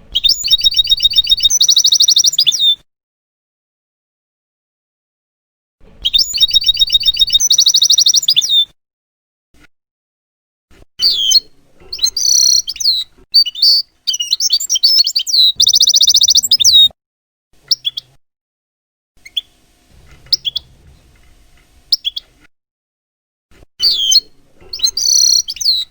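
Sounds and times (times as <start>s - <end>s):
goldfinch singing: 0.1s - 2.7s, 6.0s - 8.6s, 11.0s - 16.9s, 20.1s - 20.8s, 21.9s - 22.3s, 23.8s - 25.9s.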